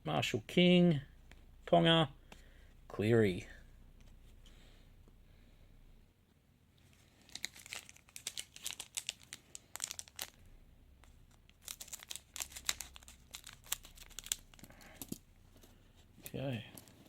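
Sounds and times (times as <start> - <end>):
wrapper tearing and crinkling: 7.2 - 10.4, 11.5 - 14.8.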